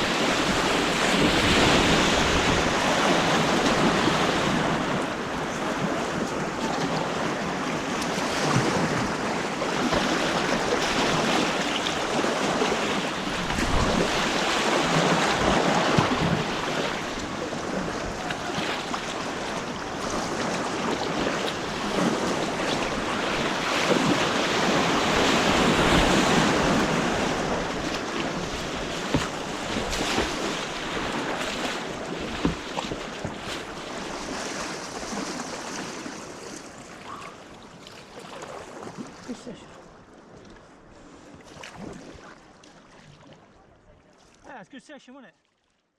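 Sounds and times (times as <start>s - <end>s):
rushing white water: 0.0s - 37.6s
sharp knocks or splashes: 9.8s - 11.7s, 13.4s - 16.6s, 25.5s - 34.2s.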